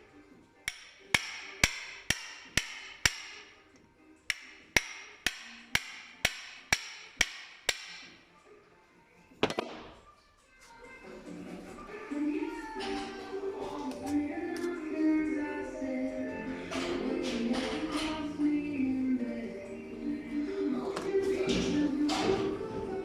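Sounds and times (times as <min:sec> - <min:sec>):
hammer striking metal: 0:00.7 - 0:03.5, 0:04.3 - 0:08.2.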